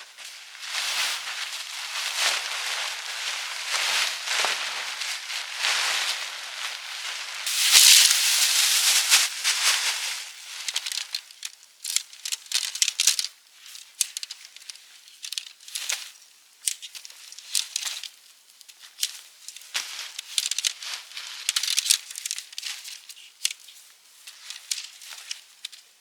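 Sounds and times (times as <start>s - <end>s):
sharp crackles and clicks: 0.0s - 13.3s
rustling and crinkling: 0.0s - 26.0s.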